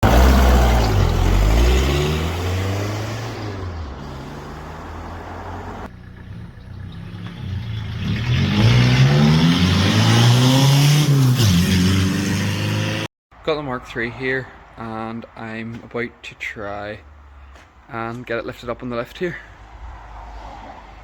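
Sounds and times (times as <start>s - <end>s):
diesel engine revving: 0.0s - 13.1s.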